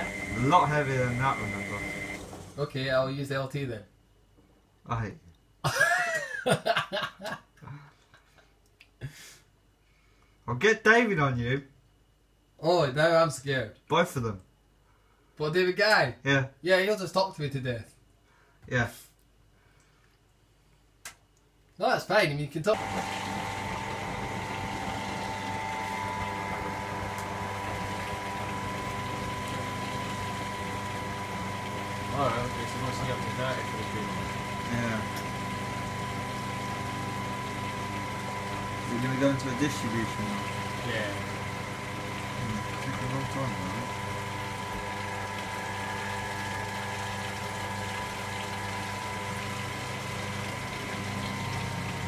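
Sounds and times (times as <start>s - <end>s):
washing machine humming and whining: 0.0s - 3.7s, 22.6s - 52.0s.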